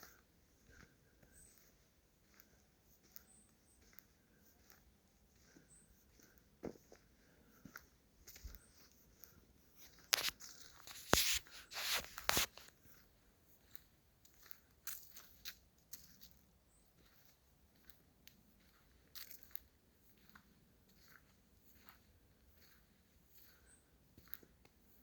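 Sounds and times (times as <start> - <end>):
dry leaves and twigs crunching: 9.8 - 12.8, 13.6 - 16.5.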